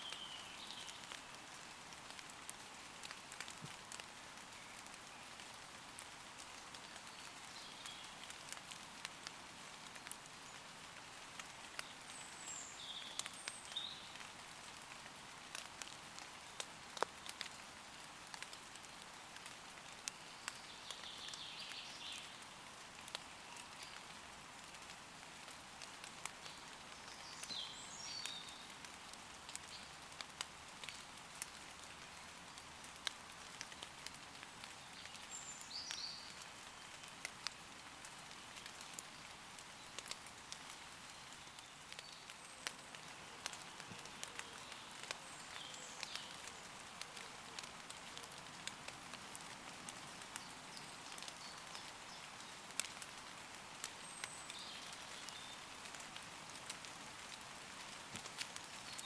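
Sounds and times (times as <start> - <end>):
rain on leaves: 0.0 - 59.0.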